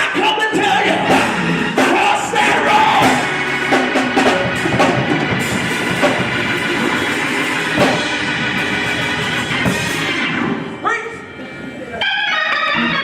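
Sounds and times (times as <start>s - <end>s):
band playing a groove: 0.0s - 13.0s.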